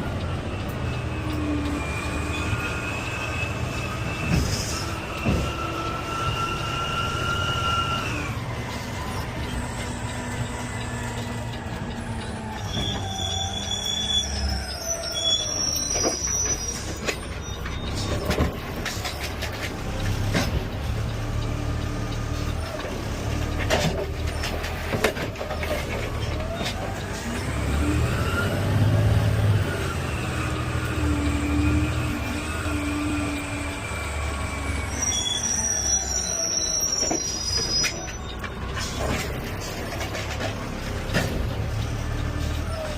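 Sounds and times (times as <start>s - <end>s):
garbage truck engine running: 0.0s - 42.9s
whines and metal squeals: 0.0s - 42.9s
sharp knocks and clanks: 4.2s - 5.6s.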